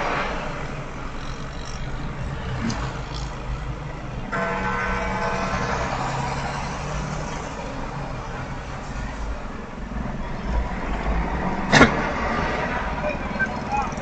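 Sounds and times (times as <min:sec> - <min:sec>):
low rumble of road vehicles: 0:00.0 - 0:14.0.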